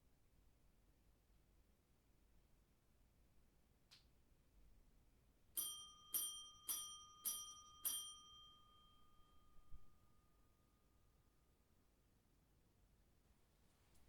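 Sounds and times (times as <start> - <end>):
small metal bell ringing: 5.6 - 11.0.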